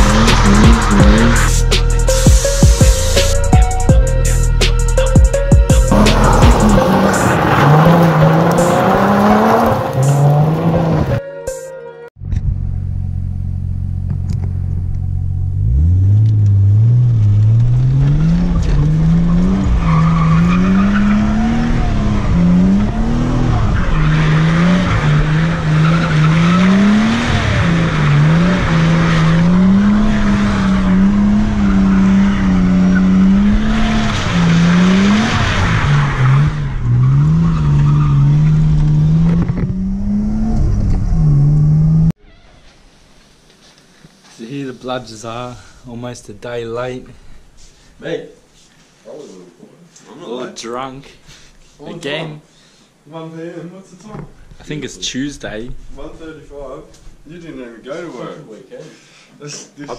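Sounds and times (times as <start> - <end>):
car engine revving: 0.0 - 3.6, 5.8 - 11.2, 12.2 - 42.2.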